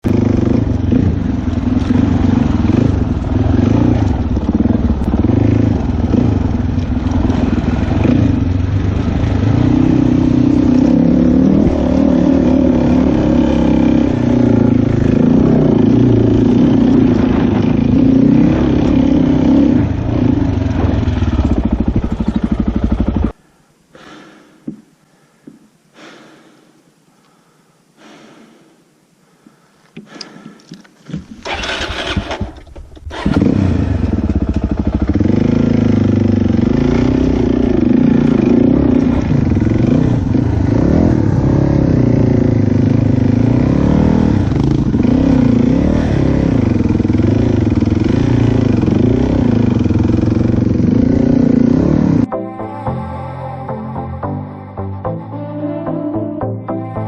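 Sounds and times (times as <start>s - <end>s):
dirt bike engine revving: 0.0s - 23.4s, 31.4s - 52.3s.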